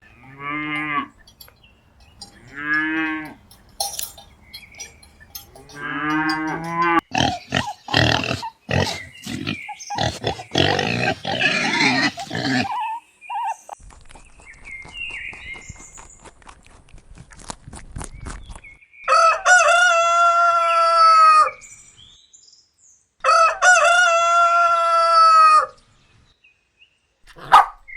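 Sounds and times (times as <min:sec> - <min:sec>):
cattle mooing: 0:00.0 - 0:01.3, 0:02.2 - 0:03.6, 0:05.0 - 0:09.0.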